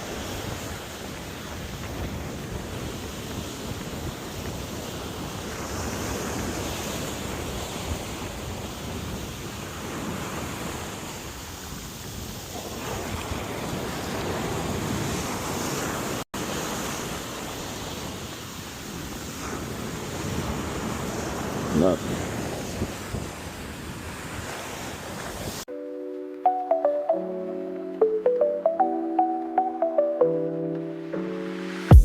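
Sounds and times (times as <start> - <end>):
wind buffeting microphone: 0.0 - 10.9, 17.7 - 25.6
surf washing onto a beach: 0.0 - 25.7.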